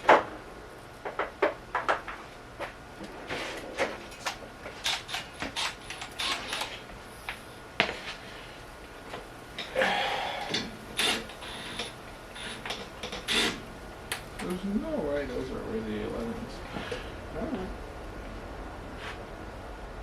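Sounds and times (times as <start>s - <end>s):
tools clicking and clinking: 4.1s - 6.8s.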